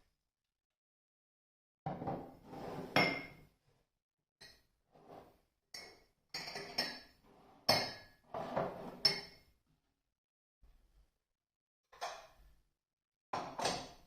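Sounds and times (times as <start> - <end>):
dishes clinking and knocking: 5.8 - 9.4.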